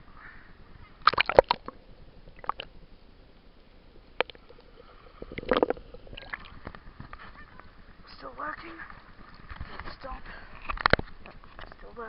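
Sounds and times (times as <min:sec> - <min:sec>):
sea water sloshing: 0:00.9 - 0:11.9
sharp water splashes: 0:01.0 - 0:01.8.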